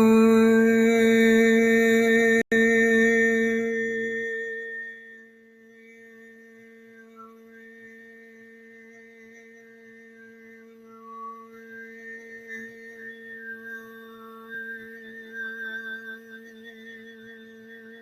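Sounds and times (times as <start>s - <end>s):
person humming with whistling overtones: 0.0s - 18.0s.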